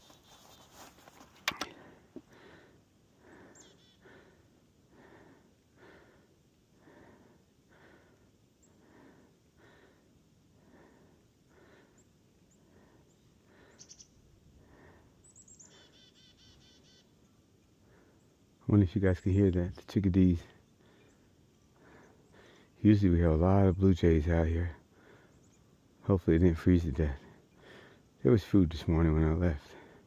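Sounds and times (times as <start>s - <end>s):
footsteps crunching through snow: 0.0s - 1.4s
faint high bird calls: 3.4s - 4.0s, 11.9s - 14.3s, 15.2s - 17.4s.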